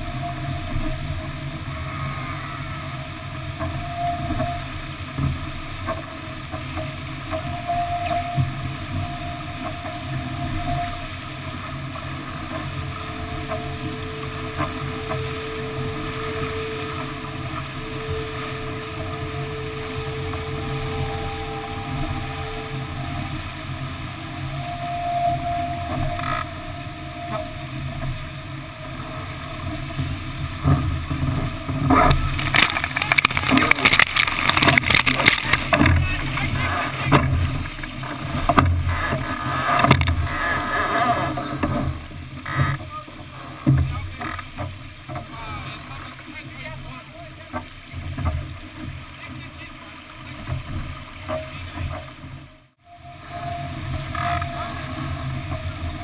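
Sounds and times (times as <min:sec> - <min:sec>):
faint humming tone: 0:00.0 - 0:39.0, 0:52.8 - 0:56.0
water splashing: 0:00.0 - 0:56.0
wind and water rushing: 0:00.0 - 0:56.0.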